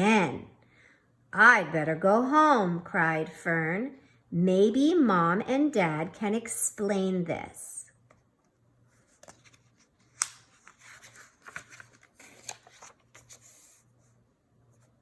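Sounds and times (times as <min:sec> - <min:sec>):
paper rustling: 0:08.9 - 0:14.2.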